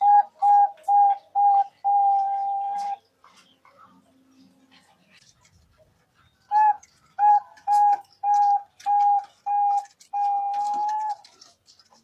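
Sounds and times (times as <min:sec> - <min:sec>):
dove cooing: 0:00.0 - 0:03.6, 0:06.4 - 0:12.0.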